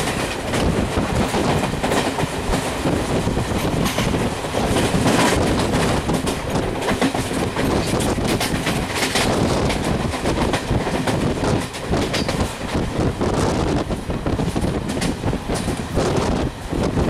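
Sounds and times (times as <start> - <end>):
wheels clicking over rail joints: 0.0 - 12.9
train wheels rumbling on track: 0.0 - 17.0.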